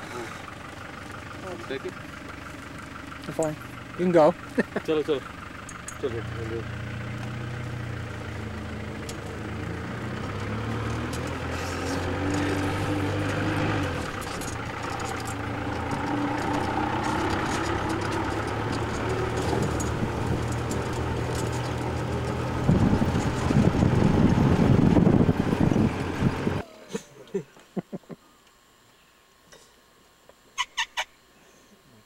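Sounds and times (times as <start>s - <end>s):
vehicle engine driving: 0.0s - 28.1s
rough low rumble: 0.8s - 26.6s.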